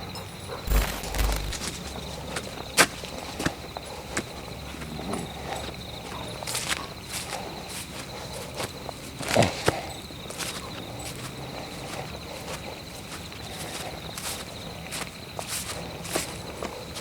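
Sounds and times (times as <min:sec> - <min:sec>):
footsteps on forest floor: 0:00.7 - 0:01.8
sharp click: 0:00.7 - 0:01.8
high insect trill: 0:00.7 - 0:07.4.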